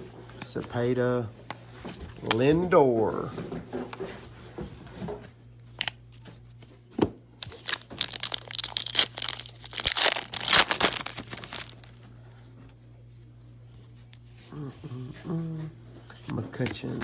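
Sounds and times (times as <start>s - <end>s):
low steady hum: 0.0s - 17.0s
wrapper tearing and crinkling: 7.4s - 11.9s.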